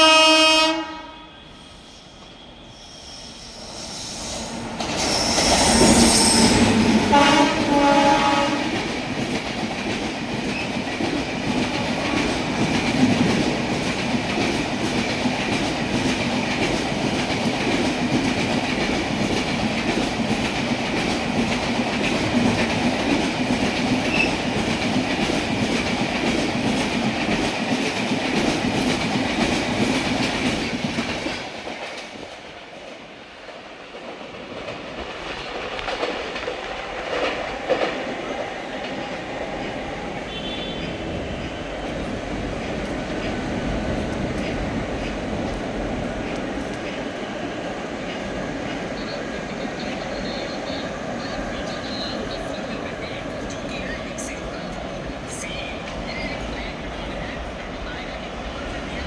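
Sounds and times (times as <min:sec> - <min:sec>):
train horn blasts: 0:00.0 - 0:01.6, 0:05.2 - 0:08.8, 0:40.2 - 0:41.0
electric locomotive passing: 0:00.0 - 0:59.0
wheels clacking on rails: 0:04.4 - 0:32.9, 0:34.0 - 0:59.0.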